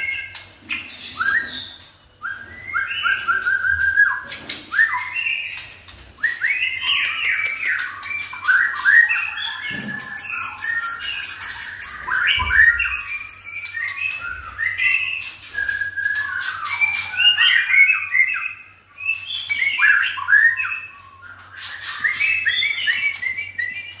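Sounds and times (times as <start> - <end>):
songbird singing whistled phrases: 0.0 - 24.0.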